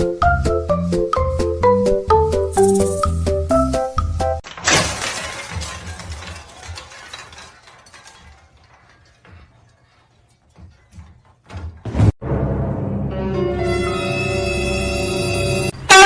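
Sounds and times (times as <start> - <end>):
loud shattering crash: 4.4 - 9.1.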